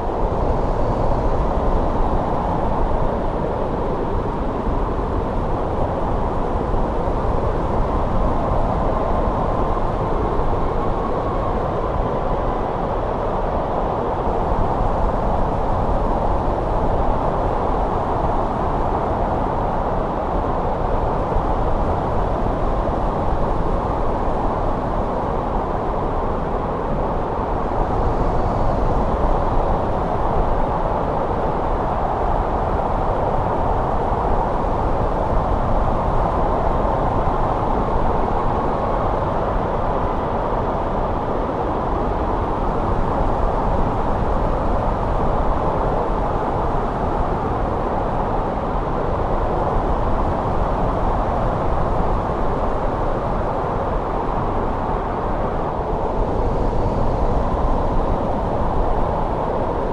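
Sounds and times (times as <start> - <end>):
wind blowing steadily: 0.0 - 59.9.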